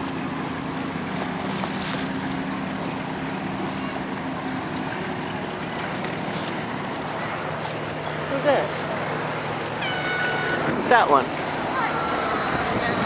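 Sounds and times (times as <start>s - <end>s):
boat engine humming: 0.0s - 13.0s
wind noise on microphone: 12.0s - 13.0s.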